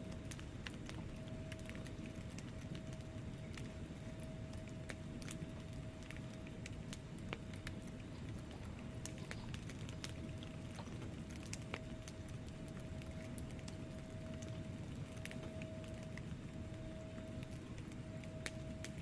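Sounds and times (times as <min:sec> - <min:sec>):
fire flames rumbling: 0:00.0 - 0:19.0
logs crackling and popping: 0:00.0 - 0:19.0.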